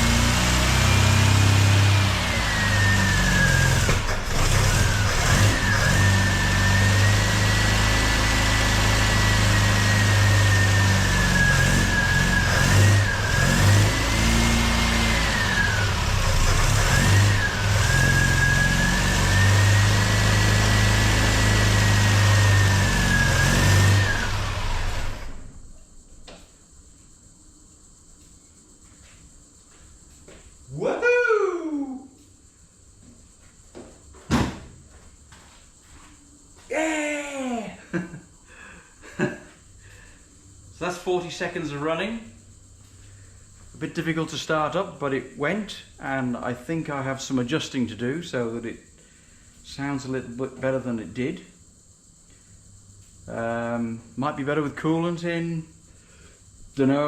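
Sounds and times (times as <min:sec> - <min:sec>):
car engine revving: 0:00.0 - 0:25.6
supercharger whine: 0:00.0 - 0:34.2, 0:34.9 - 0:57.0.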